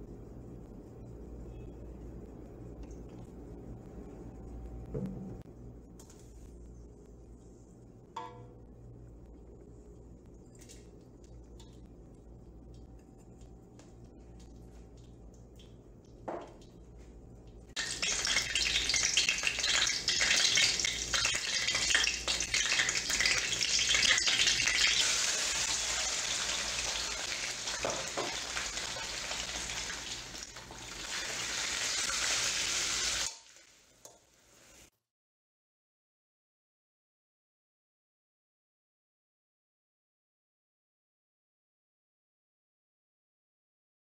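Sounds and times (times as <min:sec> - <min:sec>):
chicken sizzling in oil: 0:17.7 - 0:34.9.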